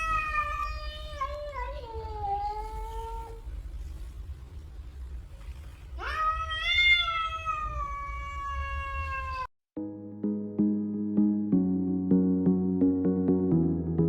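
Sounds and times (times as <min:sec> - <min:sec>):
cat meowing: 0:00.0 - 0:03.6, 0:06.0 - 0:09.5
music: 0:09.8 - 0:14.0.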